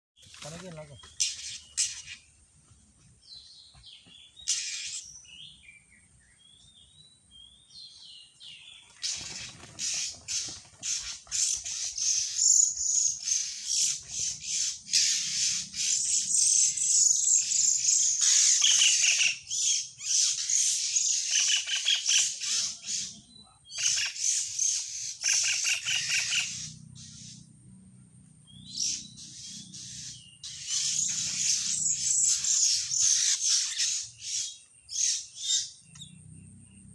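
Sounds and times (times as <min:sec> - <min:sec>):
birds chirping and squawking: 0:00.2 - 0:36.9.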